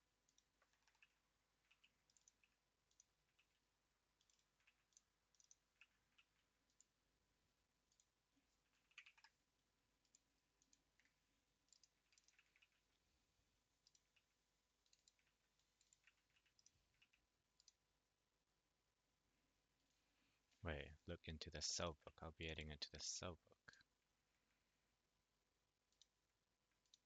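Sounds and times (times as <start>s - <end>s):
keyboard typing: 0.2s - 7.0s, 7.8s - 13.1s, 13.7s - 17.8s, 26.7s - 27.0s.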